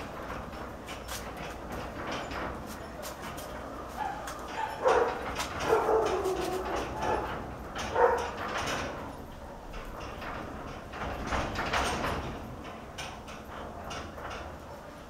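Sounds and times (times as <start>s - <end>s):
light rattling: 0.0s - 15.0s
dog barking: 4.0s - 7.3s, 7.9s - 8.4s.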